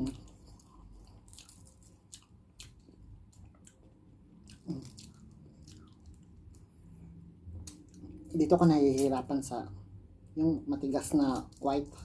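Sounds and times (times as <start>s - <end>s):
close chewing with wet mouth clicks: 0.1s - 8.2s.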